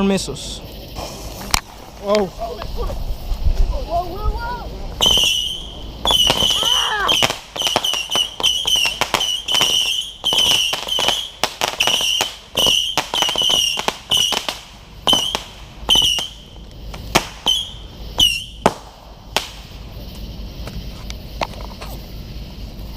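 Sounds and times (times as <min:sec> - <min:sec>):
whistling missiles firing: 0:00.9 - 0:22.1
sharp pops of missile launches: 0:05.0 - 0:22.0.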